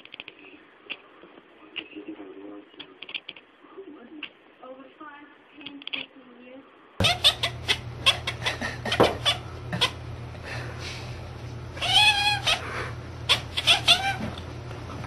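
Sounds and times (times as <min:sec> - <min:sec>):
cat wavering call: 0:07.0 - 0:08.4, 0:11.8 - 0:14.3
cat chattering: 0:07.0 - 0:10.1, 0:11.7 - 0:14.4.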